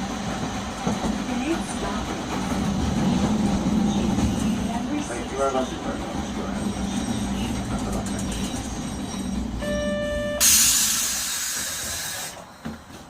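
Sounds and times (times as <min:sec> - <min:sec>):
tram rumbling: 0:00.0 - 0:13.0
compressed air hiss: 0:10.4 - 0:12.4.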